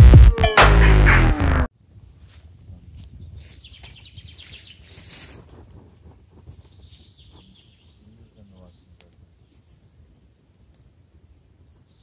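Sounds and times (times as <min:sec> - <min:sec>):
small twig fire crackling: 0:01.8 - 0:12.0
birds chirping: 0:03.2 - 0:05.2, 0:05.8 - 0:09.6.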